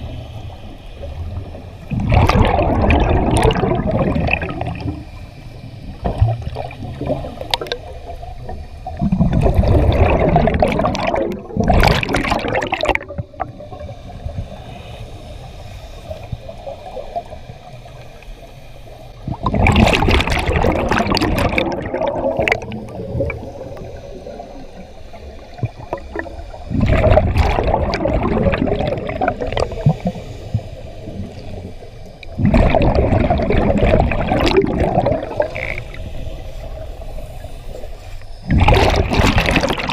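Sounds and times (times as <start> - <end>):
bubbles rushing and gurgling: 0.0 - 14.6, 19.2 - 39.9
underwater water noise: 0.0 - 39.9
diver inhaling through regulator: 29.0 - 39.1.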